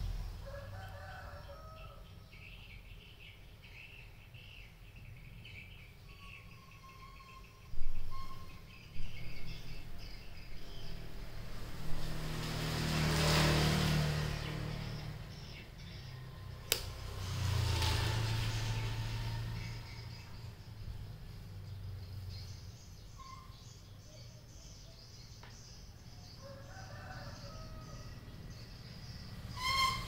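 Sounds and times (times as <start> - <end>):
small birds chirping: 1.4 - 11.4, 14.3 - 17.3, 19.6 - 29.7.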